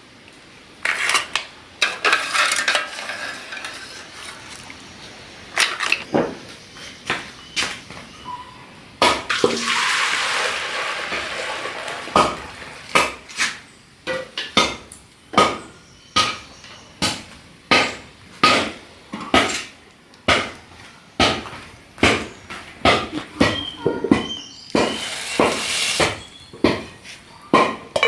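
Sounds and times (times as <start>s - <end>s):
water pouring: 9.3s - 13.0s.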